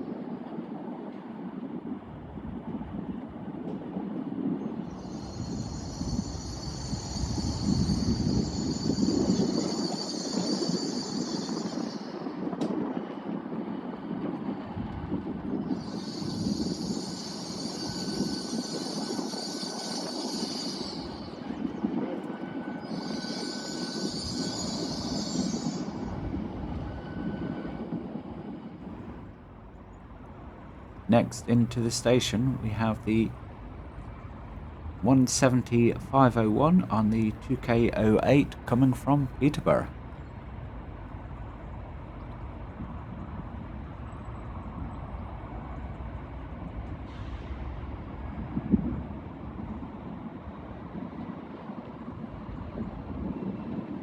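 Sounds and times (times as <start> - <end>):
train rumbling slowly: 0.0 - 54.0
high hiss: 4.9 - 12.2, 15.7 - 21.4, 22.8 - 26.2.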